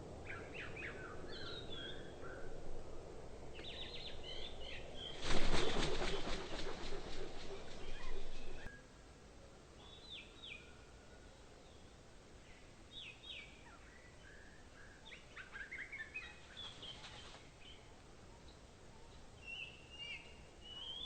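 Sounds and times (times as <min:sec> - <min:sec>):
faint steady hiss: 0:00.0 - 0:21.0
bird calls: 0:03.6 - 0:08.8, 0:13.4 - 0:21.0.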